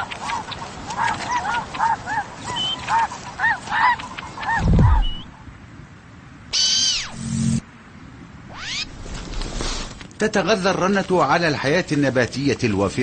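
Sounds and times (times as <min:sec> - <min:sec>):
loud deep falling sound: 0:04.6 - 0:05.3.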